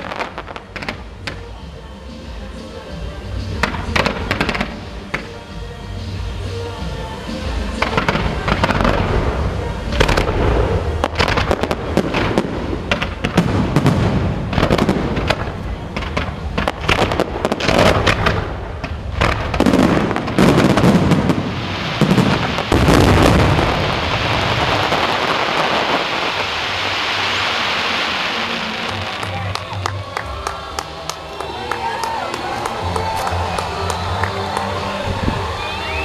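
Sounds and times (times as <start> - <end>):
fireworks booming and cracking: 0.0 - 2.4, 3.3 - 31.3
dense steady hiss: 0.0 - 36.0.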